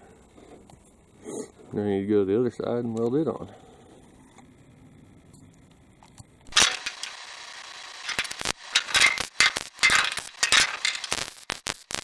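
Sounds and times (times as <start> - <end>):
welding arc hissing and crackling: 6.5 - 12.0.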